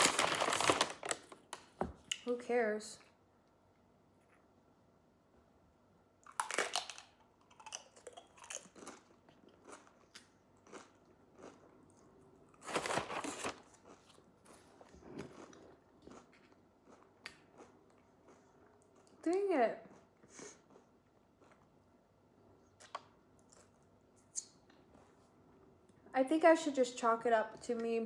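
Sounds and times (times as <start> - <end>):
person chewing crunchy food: 6.2 - 19.2, 19.8 - 21.9.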